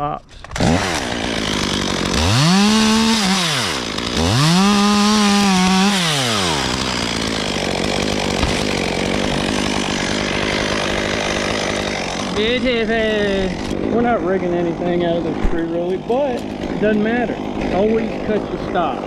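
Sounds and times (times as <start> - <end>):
chainsaw revving and idling: 0.4 - 19.0.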